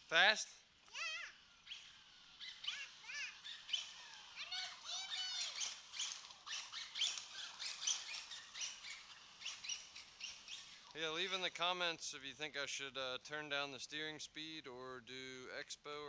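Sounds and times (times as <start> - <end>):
birds chirping: 0.0 - 12.3.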